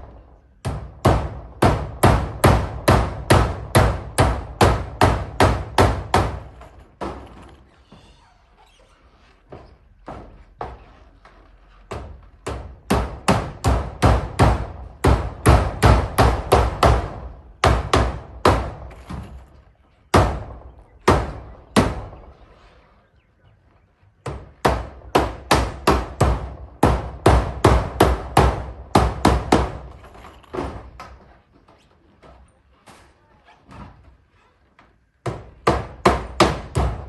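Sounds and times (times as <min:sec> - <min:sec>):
hammer driving nails: 0:00.6 - 0:07.7, 0:24.3 - 0:31.1.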